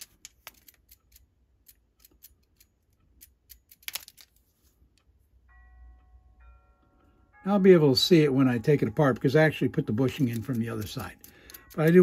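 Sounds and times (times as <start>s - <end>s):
faint steady ringing: 4.5s - 12.0s
small clicks and taps of tools: 10.2s - 12.0s.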